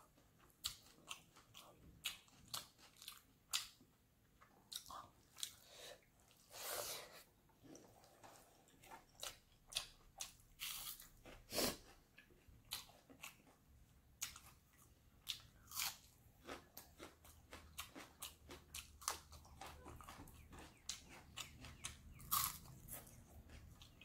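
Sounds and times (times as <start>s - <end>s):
crunchy chewing: 14.2s - 24.0s.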